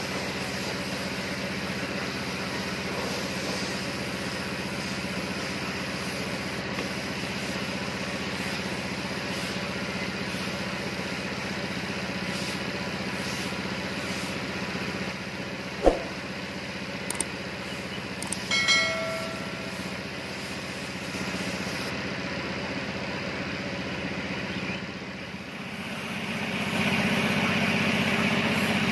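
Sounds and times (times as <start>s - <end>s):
sharp knock: 15.8s - 16.2s
light clicks: 17.1s - 17.3s.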